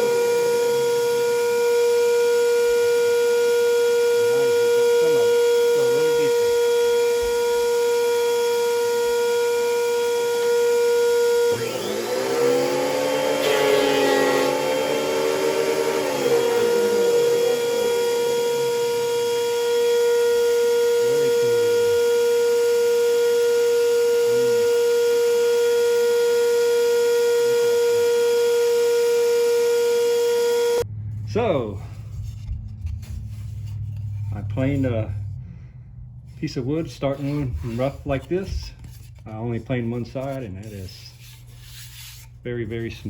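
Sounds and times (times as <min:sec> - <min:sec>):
shop vacuum running: 0:00.0 - 0:43.0
thickness planer cutting board: 0:03.6 - 0:30.8, 0:40.1 - 0:43.0.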